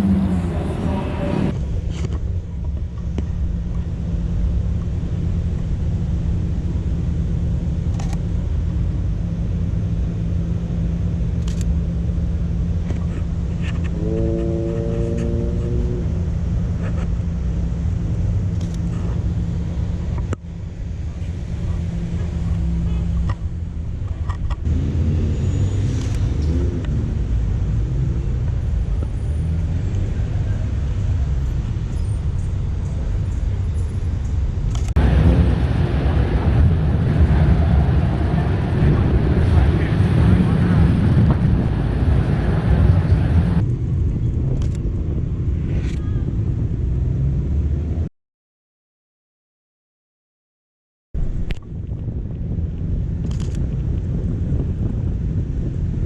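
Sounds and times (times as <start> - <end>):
car engines rumbling: 0.0 - 48.1, 51.2 - 56.0.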